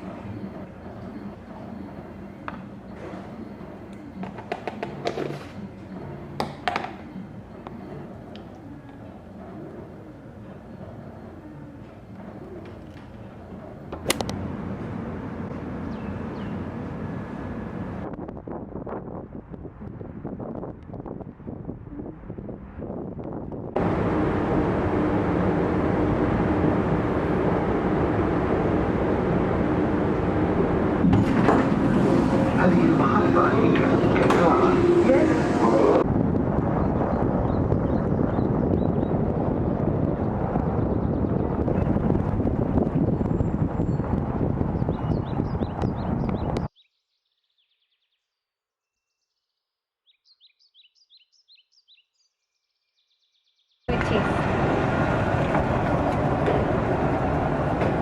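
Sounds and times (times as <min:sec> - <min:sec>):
train carriage running rumble: 0:00.0 - 0:19.1, 0:22.6 - 0:46.7, 0:53.9 - 0:58.0
loud steady outdoor noise: 0:00.0 - 0:46.7, 0:53.9 - 0:58.0
sharp clicks: 0:14.0 - 0:14.4
small songbirds chirping: 0:15.8 - 0:16.7, 0:43.0 - 0:53.9.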